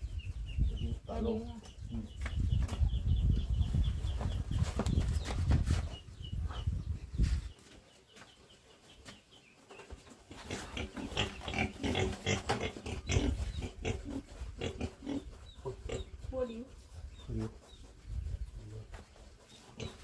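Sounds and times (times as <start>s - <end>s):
pigs grunting: 10.3s - 16.3s, 19.6s - 20.0s.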